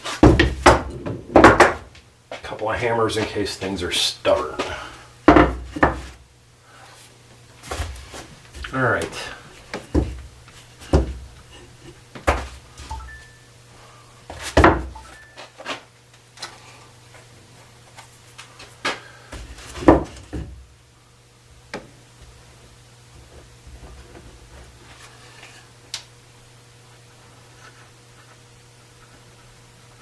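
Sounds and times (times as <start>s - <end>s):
wooden knocks and clunks: 5.3s - 6.1s, 9.7s - 10.2s, 14.6s - 15.0s, 19.8s - 20.6s.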